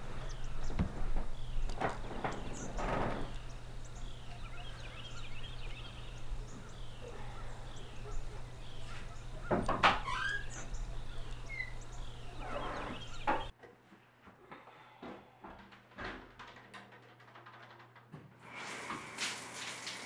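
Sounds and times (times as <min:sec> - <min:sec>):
steady low hum: 0:00.0 - 0:09.5
birds chirping: 0:00.0 - 0:13.6.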